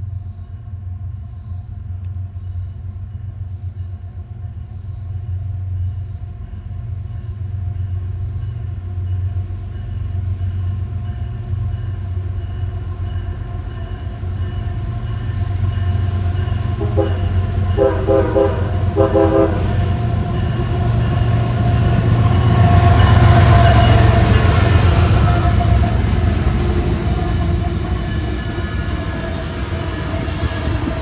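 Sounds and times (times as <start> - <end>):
diesel locomotive engine rumble: 0.0 - 31.0
train horn blasts: 15.6 - 31.0.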